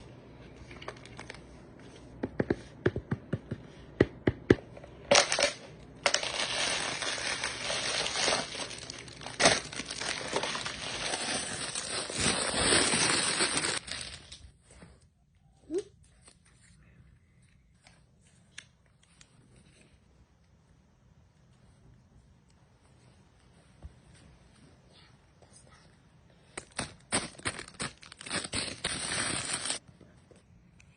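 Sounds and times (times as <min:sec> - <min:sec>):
packaging crinkling and tearing: 0:00.7 - 0:01.4, 0:05.1 - 0:14.4, 0:26.6 - 0:29.8.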